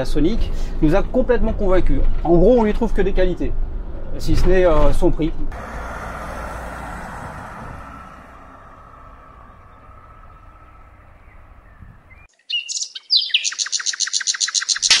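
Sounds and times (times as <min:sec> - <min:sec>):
vehicle road noise: 0:00.0 - 0:12.3
bird chirping and trilling: 0:08.9 - 0:15.0.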